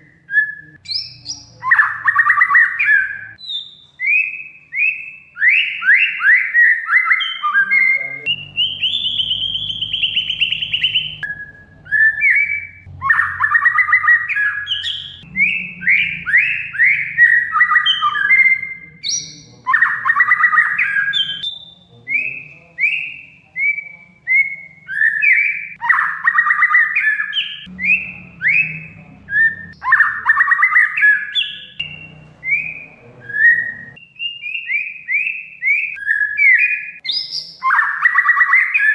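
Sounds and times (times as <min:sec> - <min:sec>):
bird singing whistles and rattles: 0:00.1 - 0:38.9.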